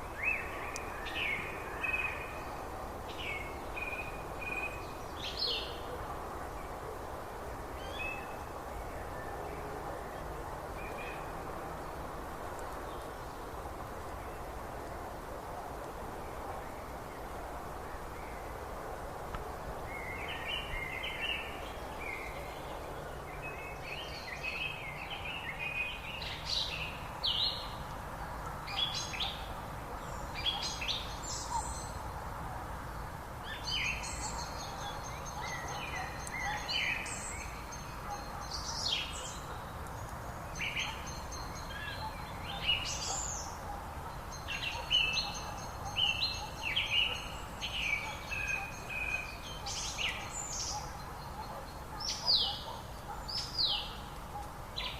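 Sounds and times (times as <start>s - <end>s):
steady background hiss: 0.0s - 54.9s
songbirds chirping and singing: 19.8s - 32.1s, 32.9s - 54.9s.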